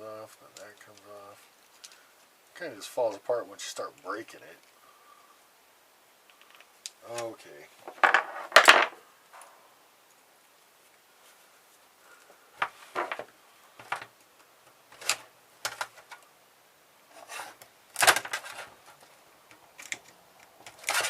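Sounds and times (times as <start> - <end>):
small metal and plastic parts rattling: 14.9 - 16.2, 17.2 - 21.0.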